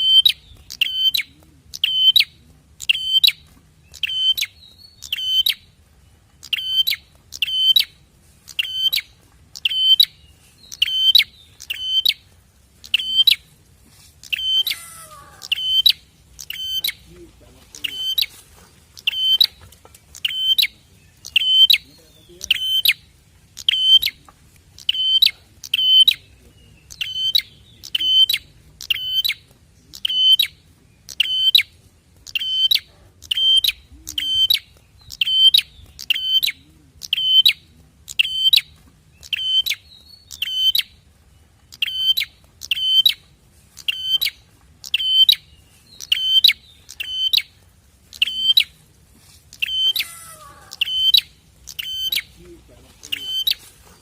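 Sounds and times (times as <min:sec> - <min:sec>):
sharp rattling bird call: 0:00.0 - 0:05.7, 0:06.4 - 0:13.5, 0:14.2 - 0:17.1, 0:17.7 - 0:26.3, 0:49.5 - 0:52.3
faint different bird call: 0:14.2 - 0:23.0, 0:49.5 - 0:54.0.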